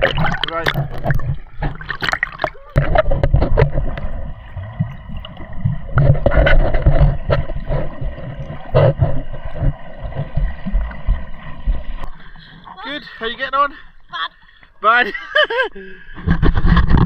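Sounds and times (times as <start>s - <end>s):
sharp water splashes: 0.0s - 13.1s
sea water sloshing: 0.0s - 14.8s.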